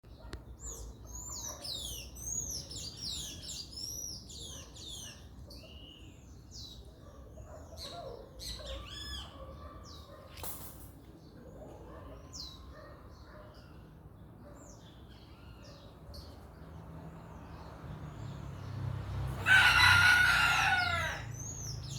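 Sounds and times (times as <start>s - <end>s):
birds chirping: 11.3s - 21.9s.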